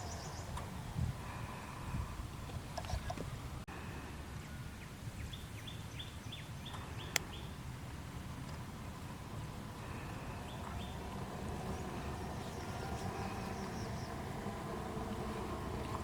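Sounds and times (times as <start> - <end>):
bird chirping: 0.0 - 0.6, 4.4 - 7.6, 10.3 - 16.0
low outdoor rumble: 0.0 - 16.0.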